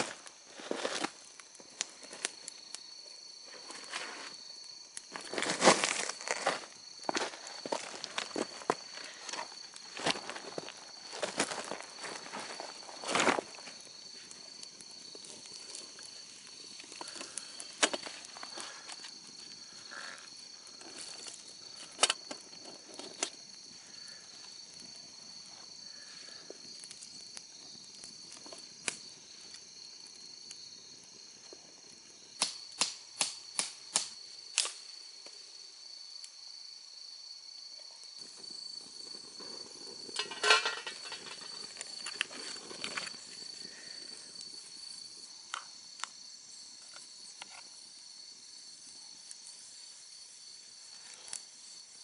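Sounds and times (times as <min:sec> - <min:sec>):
insects droning high-pitched: 0:00.0 - 0:52.0.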